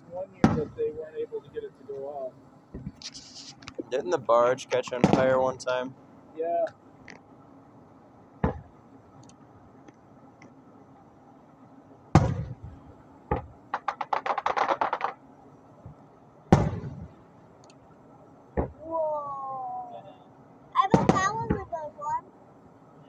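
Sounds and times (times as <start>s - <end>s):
fireworks crackling: 0.1s - 7.2s, 12.2s - 17.4s, 20.8s - 22.1s
fireworks bangs: 0.3s - 2.1s, 2.7s - 5.9s, 8.4s - 8.8s, 12.1s - 15.2s, 15.8s - 17.3s, 18.6s - 18.9s, 20.8s - 21.8s.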